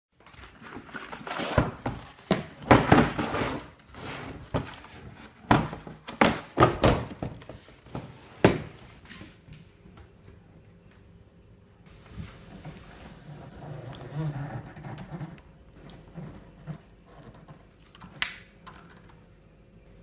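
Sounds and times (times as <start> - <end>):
handling knocks and clicks: 17.3 - 19.2.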